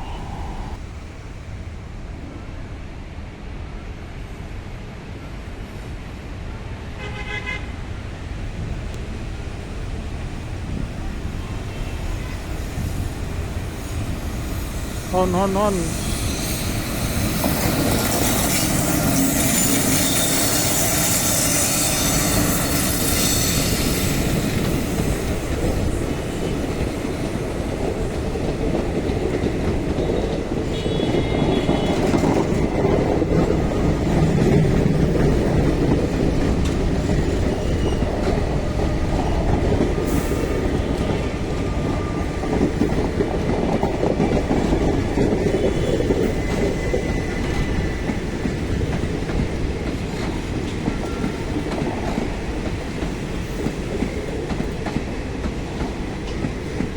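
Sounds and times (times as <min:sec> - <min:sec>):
train wheels rumbling on rails: 0:07.8 - 0:56.9
wheel squeal: 0:16.0 - 0:24.3.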